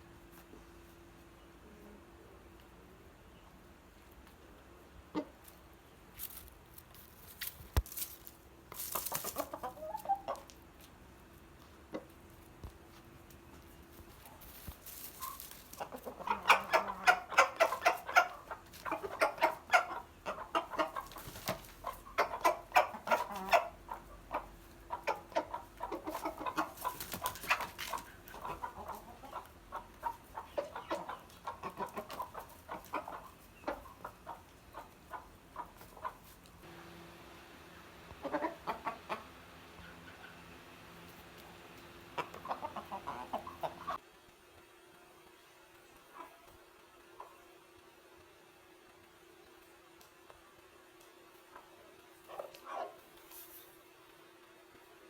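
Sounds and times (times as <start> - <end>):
chickens clucking: 0.1 - 8.1, 8.7 - 44.0, 45.8 - 48.0, 51.2 - 53.8.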